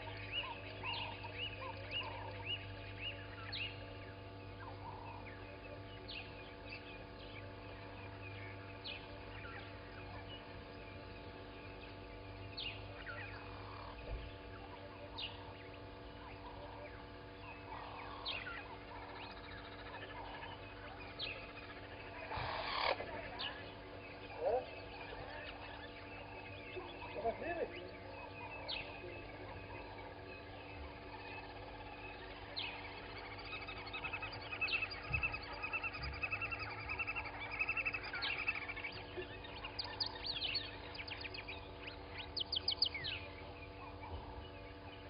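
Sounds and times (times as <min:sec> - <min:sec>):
birds chirping and whistling: 0:00.0 - 0:45.0
low electrical hum: 0:00.0 - 0:45.0.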